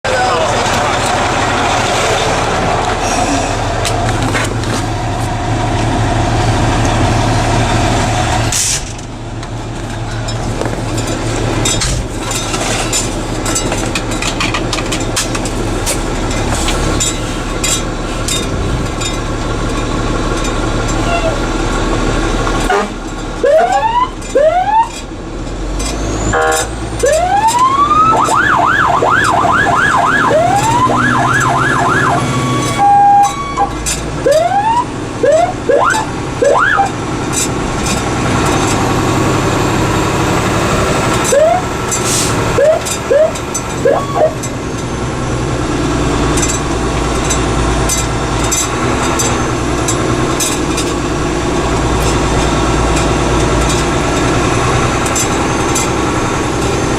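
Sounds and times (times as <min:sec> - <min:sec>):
truck engine running: 0:00.0 - 0:56.9
fire engine siren whooping: 0:23.4 - 0:25.0, 0:26.1 - 0:37.0, 0:39.2 - 0:44.5.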